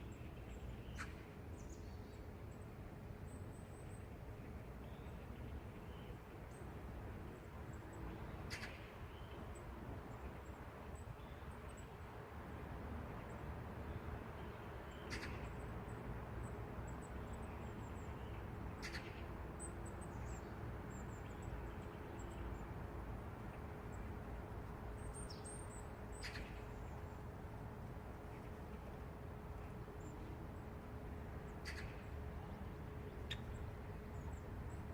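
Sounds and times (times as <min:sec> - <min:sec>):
distant traffic rumble: 0:02.3 - 0:34.9
small birds chirping: 0:24.9 - 0:27.2, 0:31.3 - 0:34.9.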